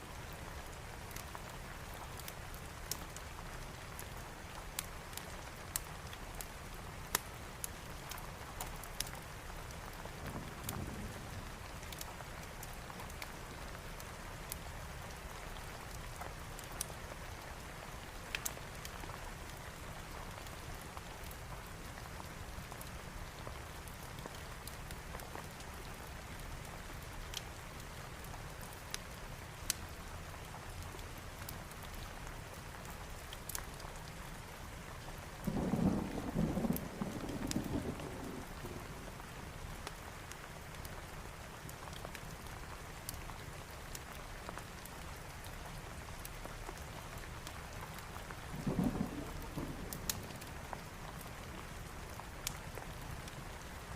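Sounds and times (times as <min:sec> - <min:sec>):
heavy rain: 0:00.0 - 0:53.9
thunder rumbling: 0:35.4 - 0:39.0, 0:48.5 - 0:50.8.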